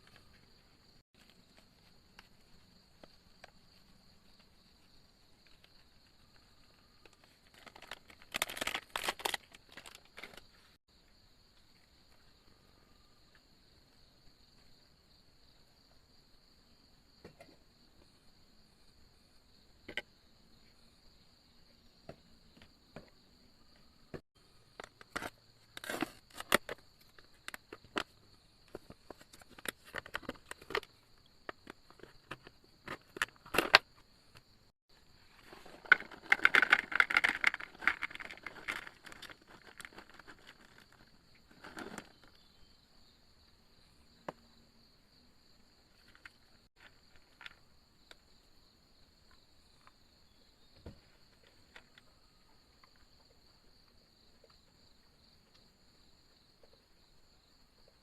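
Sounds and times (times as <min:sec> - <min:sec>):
rustling crackle: 0:05.5 - 0:10.8, 0:35.2 - 0:42.4
insects trilling: 0:24.6 - 0:58.0.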